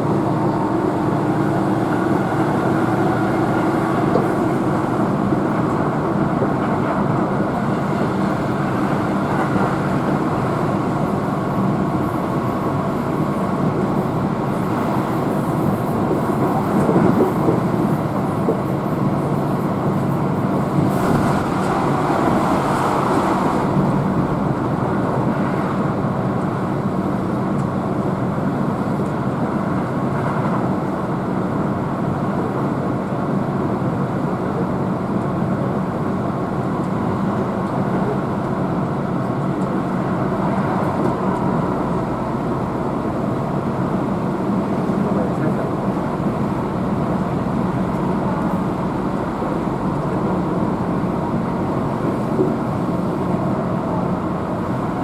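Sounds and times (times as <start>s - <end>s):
train motor hum: 0.0s - 27.7s
train wheels rumbling on rails: 0.0s - 55.0s.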